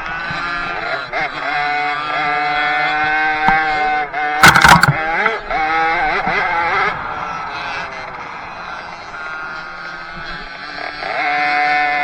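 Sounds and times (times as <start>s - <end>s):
loud burst of knocks: 4.4s - 5.0s.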